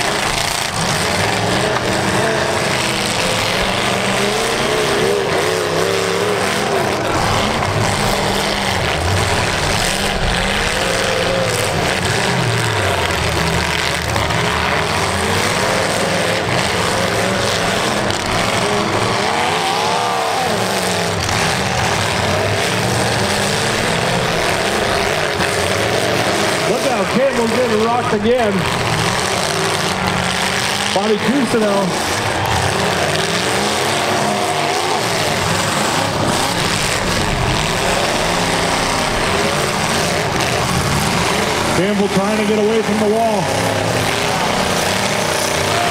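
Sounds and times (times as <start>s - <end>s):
car engines revving: 0.0s - 45.9s.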